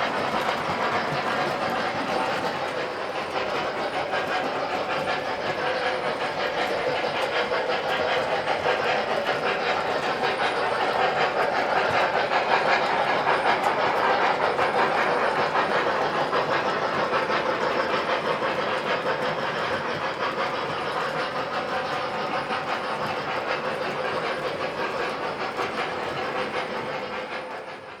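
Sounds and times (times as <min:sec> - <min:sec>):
model train rolling on track: 0:00.0 - 0:28.0.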